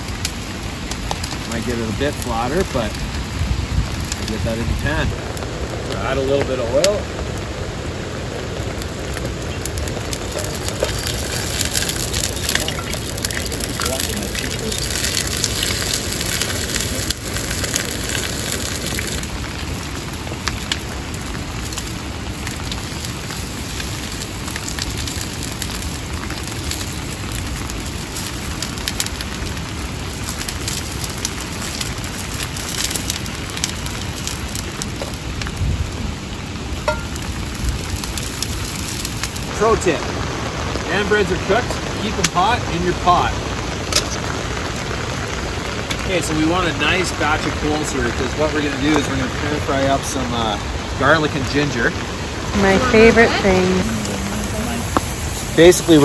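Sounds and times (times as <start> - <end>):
campfire crackling: 0.0 - 56.0
steady rain: 0.0 - 56.0.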